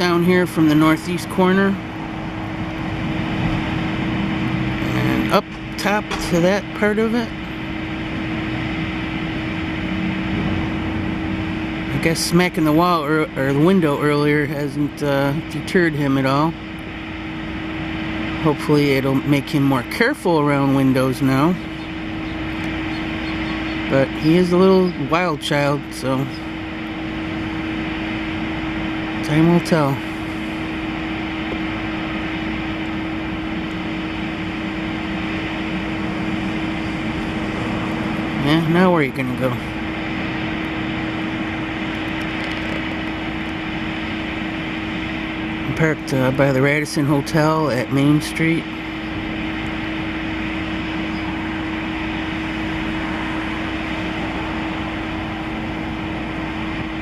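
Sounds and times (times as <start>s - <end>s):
even rushing noise: 0.0s - 14.4s, 25.6s - 45.8s
machine hum with low drone: 0.0s - 57.0s.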